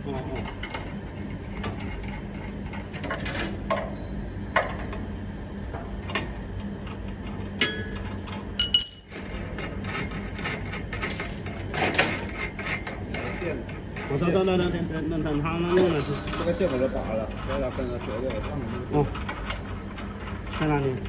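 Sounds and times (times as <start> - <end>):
steady low hum: 0.0 - 21.0
tools and metal parts clinking: 8.6 - 13.3.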